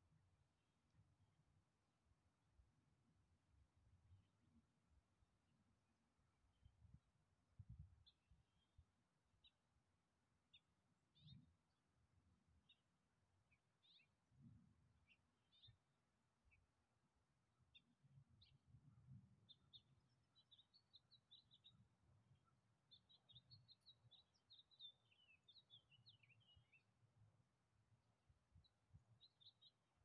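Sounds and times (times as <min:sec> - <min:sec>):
bird chirping: 0:12.6 - 0:14.2, 0:15.0 - 0:15.9, 0:17.6 - 0:27.0, 0:28.5 - 0:30.0.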